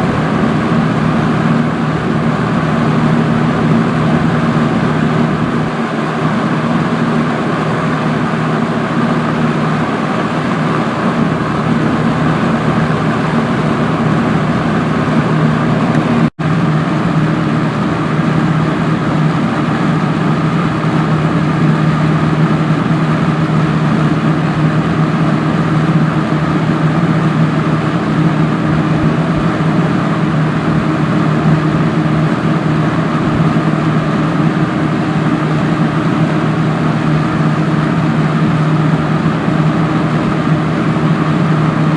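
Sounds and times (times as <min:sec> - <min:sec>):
box fan air rushing: 0:00.0 - 0:41.9
low motor hum: 0:00.0 - 0:41.9.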